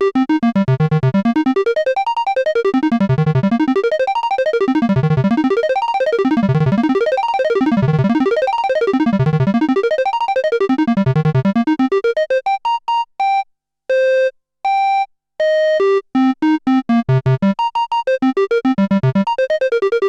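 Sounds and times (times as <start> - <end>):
synthesizer arpeggio: 0.2 - 12.6, 16.9 - 20.0.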